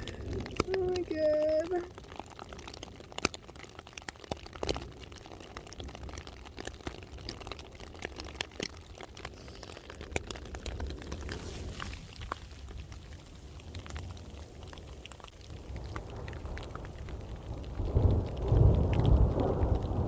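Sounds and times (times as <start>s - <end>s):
hail and rain on a tent: 0.0s - 20.0s.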